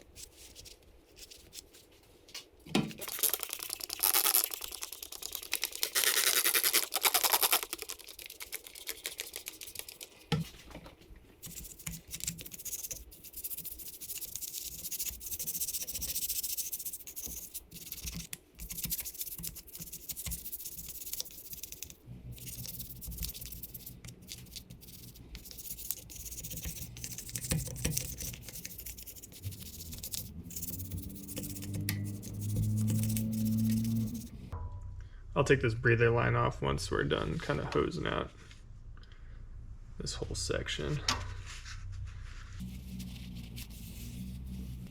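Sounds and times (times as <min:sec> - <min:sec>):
scratchy brushing and scrubbing: 0:03.0 - 0:10.7, 0:11.4 - 0:34.3, 0:41.5 - 0:44.9.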